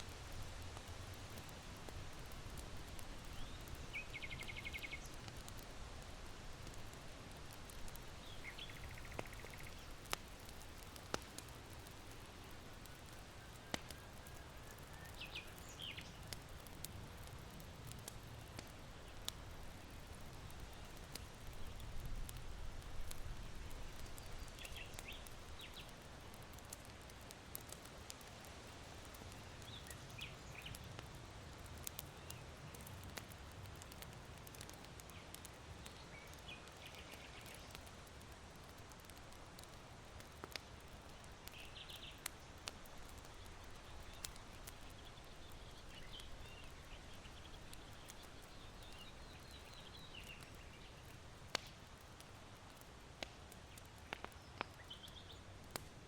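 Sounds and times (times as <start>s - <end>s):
charcoal embers popping: 0.0s - 56.0s
faint wind: 0.0s - 56.0s
small birds chirping: 0.8s - 5.6s, 6.9s - 22.0s, 23.0s - 28.2s, 28.8s - 38.2s, 39.6s - 55.6s.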